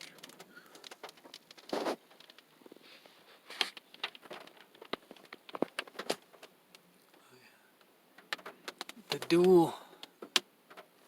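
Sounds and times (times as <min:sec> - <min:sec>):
raindrops tapping on car: 0:00.0 - 0:02.6.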